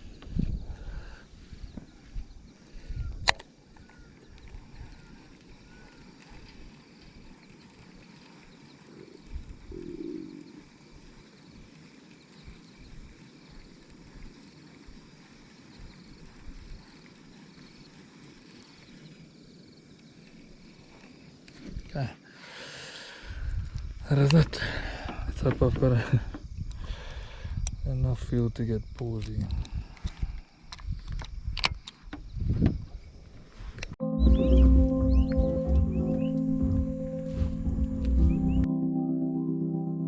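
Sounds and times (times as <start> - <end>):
faint chirps: 0.0 - 22.1, 34.0 - 38.7
sharp click: 3.2 - 3.5.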